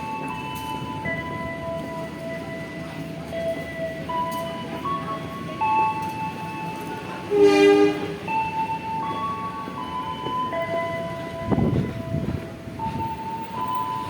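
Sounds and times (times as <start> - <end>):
horn blast: 7.3 - 8.2.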